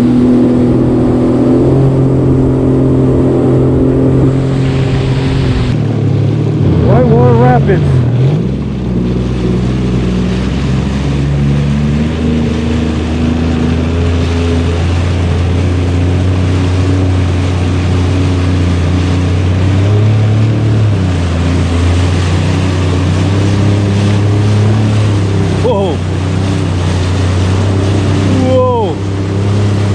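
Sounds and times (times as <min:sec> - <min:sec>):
wind noise: 0:00.0 - 0:06.9
jet ski engine running: 0:00.0 - 0:29.9
water splashing: 0:00.0 - 0:29.9.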